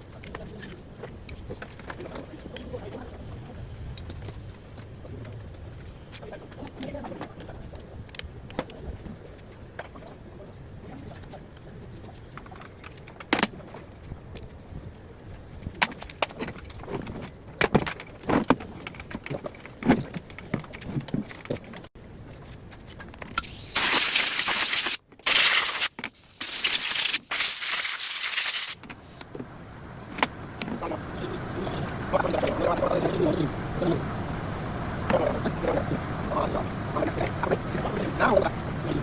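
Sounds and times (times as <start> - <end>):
loud hissing bursts: 23.4 - 29.2.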